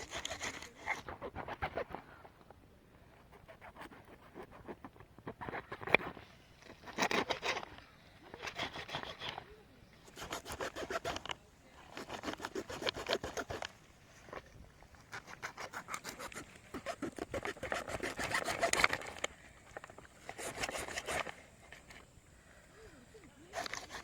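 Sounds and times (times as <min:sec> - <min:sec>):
blade sawing through fish flesh: 0:00.0 - 0:02.0, 0:03.2 - 0:09.4, 0:10.0 - 0:13.7, 0:15.0 - 0:19.3, 0:20.2 - 0:21.4, 0:23.4 - 0:24.0.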